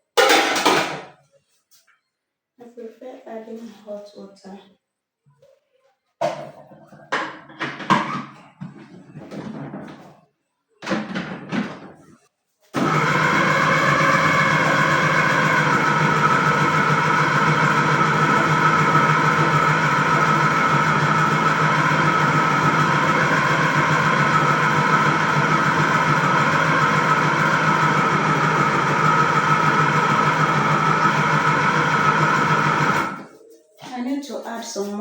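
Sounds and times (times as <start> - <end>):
food processor motor running: 12.8 - 33.3.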